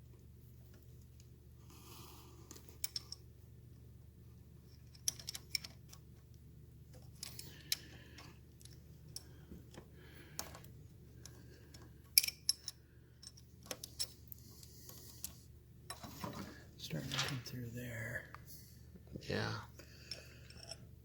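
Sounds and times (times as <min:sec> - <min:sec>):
metallic clicks of chain tool: 0:04.8 - 0:05.8, 0:12.2 - 0:14.2.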